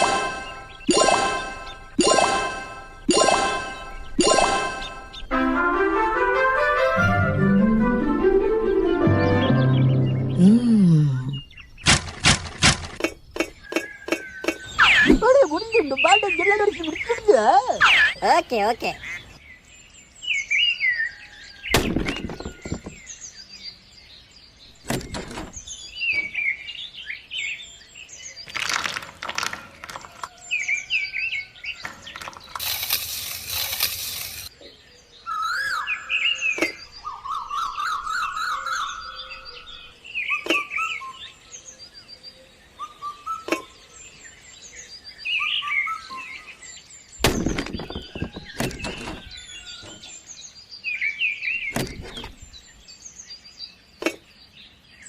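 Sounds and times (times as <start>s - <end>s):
small birds chirping: 0.0s - 5.3s, 8.8s - 55.0s
knocks and clatters: 11.8s - 14.3s, 21.8s - 23.0s, 47.2s - 50.1s.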